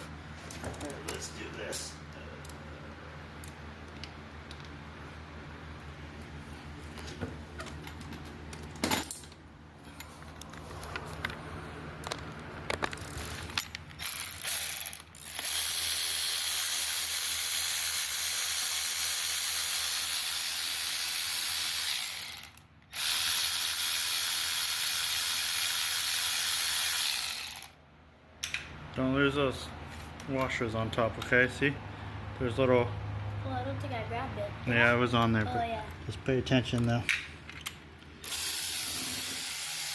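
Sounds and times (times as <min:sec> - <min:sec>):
ratchet wrench clicking: 0:14.0 - 0:27.8, 0:37.6 - 0:39.9.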